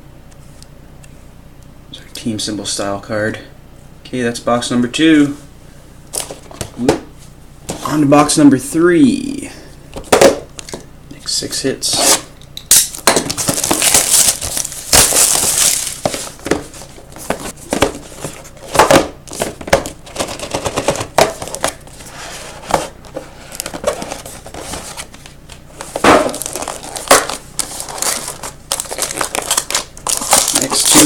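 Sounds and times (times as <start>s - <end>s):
plastic wrapping crinkling and tearing: 12.9s - 16.4s, 26.3s - 31.0s.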